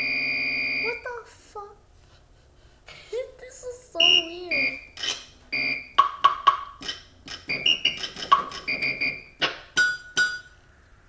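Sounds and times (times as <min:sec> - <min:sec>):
electronic keyboard drum hits and blips: 0:05.0 - 0:10.6.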